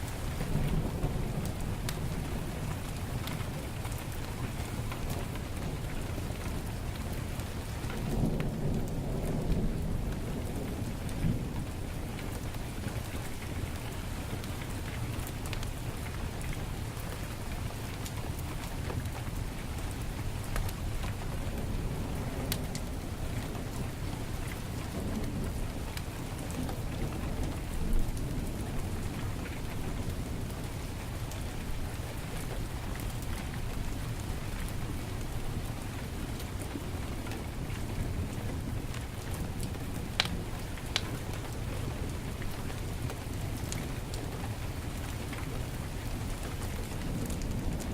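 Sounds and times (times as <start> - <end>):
heavy rain: 0.0 - 47.9
wood fire crackling: 0.0 - 47.9
thunder rumbling: 0.1 - 17.0, 18.2 - 43.6
sharp crackles: 39.0 - 41.6.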